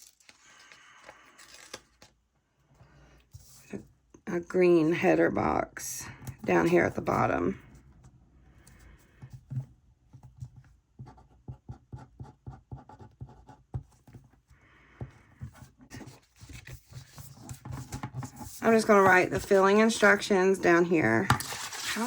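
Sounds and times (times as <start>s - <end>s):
pen taps and scratches on paper: 9.2s - 14.4s.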